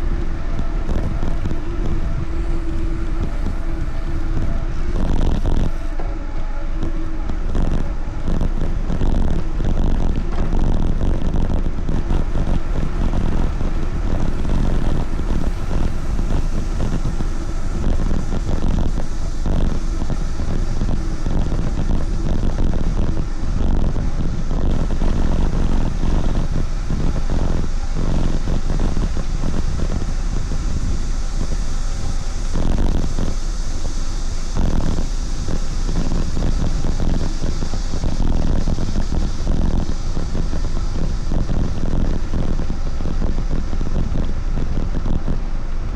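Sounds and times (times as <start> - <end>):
wind on microphone: 0.0 - 45.9.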